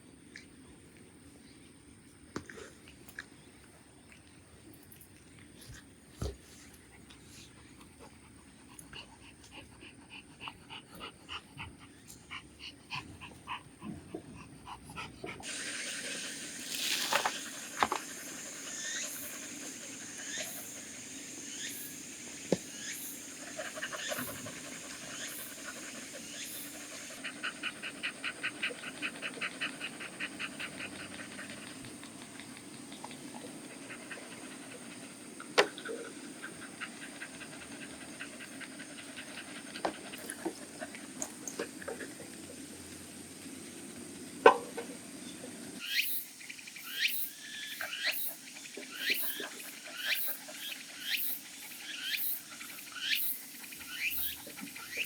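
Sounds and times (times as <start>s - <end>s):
dog panting: 6.9s - 16.6s, 17.2s - 42.6s, 47.8s - 55.0s.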